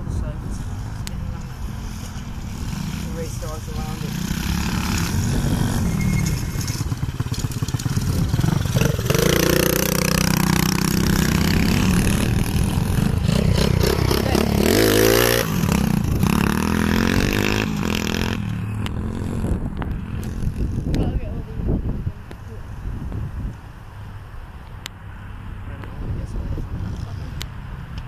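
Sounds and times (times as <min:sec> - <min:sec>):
small motorbike engines revving: 0:00.0 - 0:22.6.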